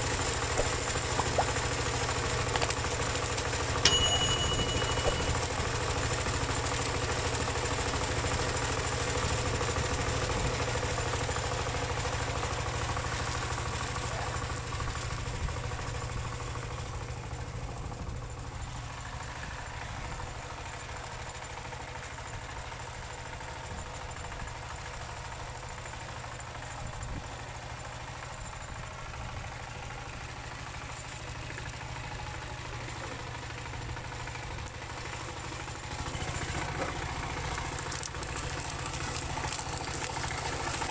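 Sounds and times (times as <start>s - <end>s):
diesel tractor engine knocking: 0.0s - 3.8s, 4.6s - 40.9s.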